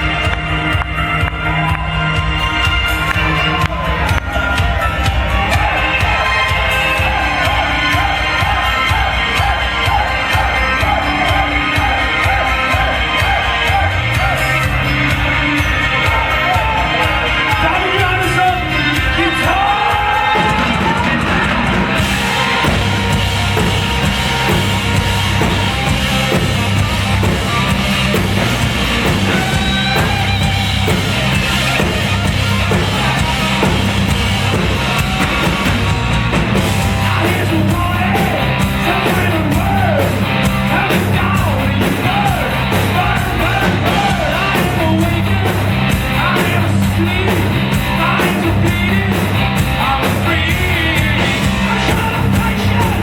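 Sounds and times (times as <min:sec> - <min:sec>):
rock band playing: 0:00.0 - 0:53.0
person singing: 0:36.6 - 0:53.0.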